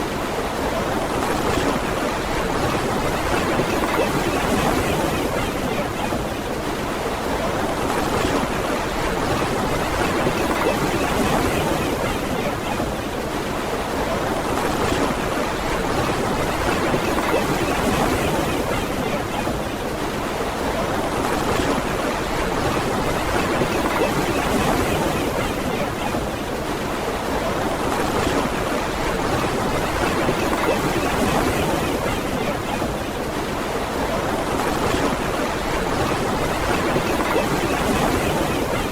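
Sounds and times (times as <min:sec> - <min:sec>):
ocean waves breaking on beach: 0:00.0 - 0:38.9.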